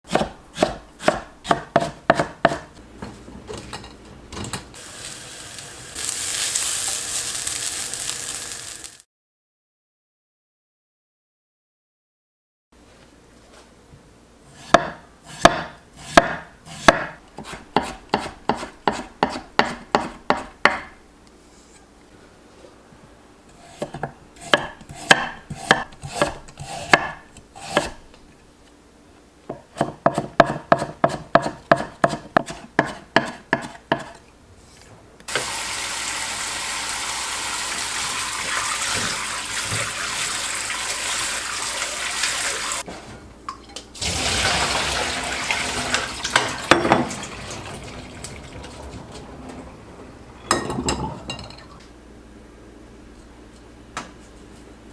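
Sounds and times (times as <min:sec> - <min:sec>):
knife chopping on cutting board: 0:00.1 - 0:02.8, 0:14.6 - 0:21.0, 0:23.7 - 0:28.0, 0:29.5 - 0:34.2
tap running: 0:35.3 - 0:35.6.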